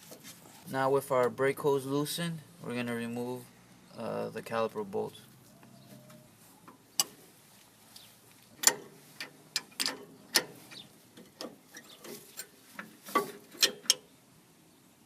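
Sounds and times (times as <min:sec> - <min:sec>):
wrench clicking on metal bolts: 0:07.0 - 0:07.2, 0:08.6 - 0:14.1.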